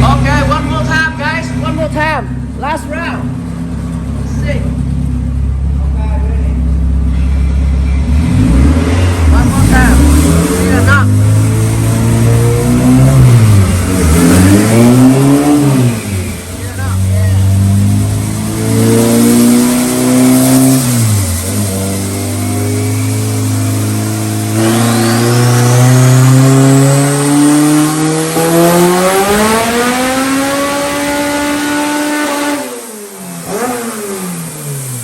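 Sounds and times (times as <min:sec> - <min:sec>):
car engine revving: 0:00.0 - 0:35.0
high whine: 0:10.0 - 0:31.7.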